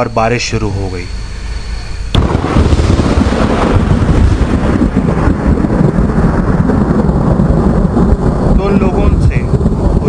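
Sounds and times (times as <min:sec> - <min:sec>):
rumbling thunder: 0:02.0 - 0:10.0
rain: 0:02.1 - 0:10.0
thunder crack: 0:02.1 - 0:10.0.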